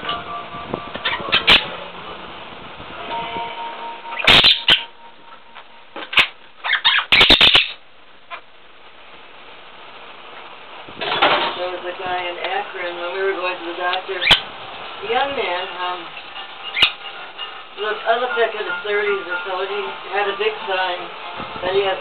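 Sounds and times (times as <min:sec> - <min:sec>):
parrot harsh squawks: 0:01.0 - 0:01.7, 0:04.1 - 0:05.0, 0:06.0 - 0:08.4, 0:14.2 - 0:14.5, 0:16.6 - 0:17.1.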